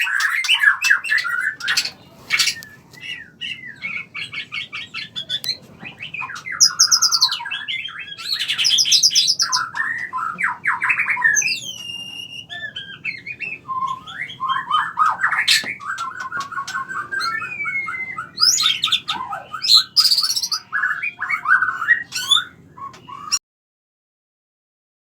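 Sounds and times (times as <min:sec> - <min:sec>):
birds chirping and singing: 0:00.0 - 0:23.4.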